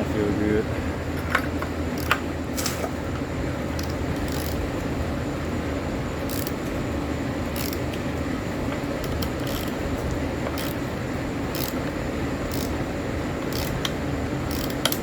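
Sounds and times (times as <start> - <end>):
steady workshop hum: 0.0 - 15.0.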